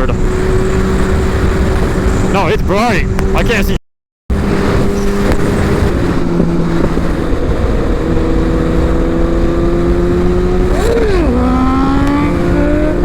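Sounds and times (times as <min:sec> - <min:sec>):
motorcycle engine: 0:00.0 - 0:03.7, 0:04.3 - 0:13.0
wind noise on microphone: 0:00.0 - 0:13.0.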